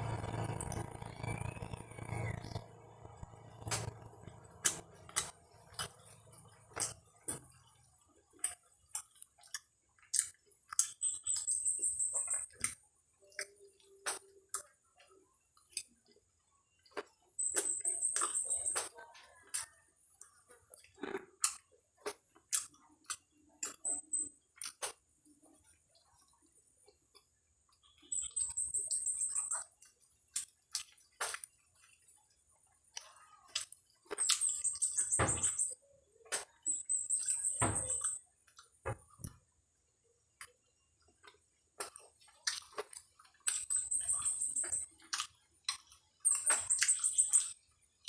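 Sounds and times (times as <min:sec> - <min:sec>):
fast high chirping: 0:00.0 - 0:06.3
crunchy food being chewed: 0:00.0 - 0:39.5, 0:40.2 - 0:48.0.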